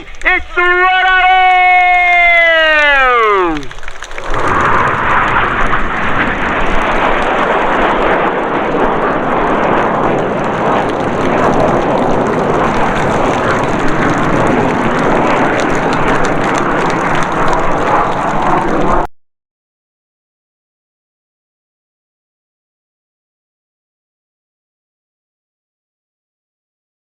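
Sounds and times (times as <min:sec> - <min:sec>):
jet noise rushing: 0:00.0 - 0:19.0.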